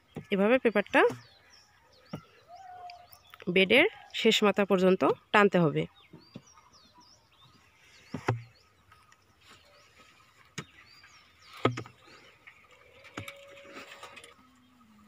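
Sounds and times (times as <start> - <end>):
small birds chirping: 0.0 - 15.0
sharp thumps: 8.1 - 8.6, 11.5 - 12.1.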